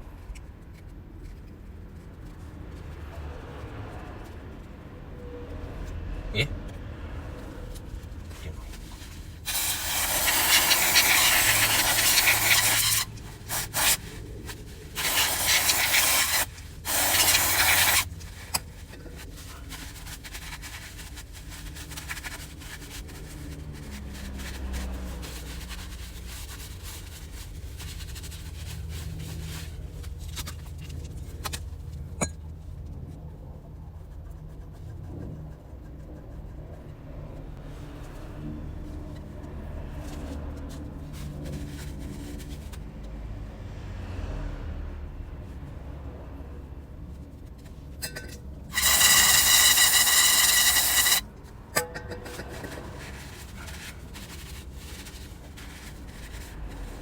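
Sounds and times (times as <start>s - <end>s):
rubbing and handling of parts: 7.3s - 33.0s, 38.8s - 43.2s, 47.1s - 57.0s
pressurised spray hissing: 9.4s - 14.0s, 15.0s - 18.1s, 48.8s - 51.2s.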